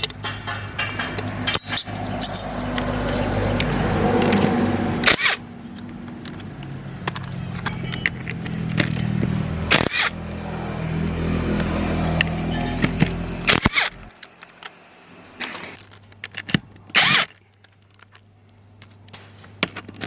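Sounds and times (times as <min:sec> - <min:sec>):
engine running: 0:00.0 - 0:16.8.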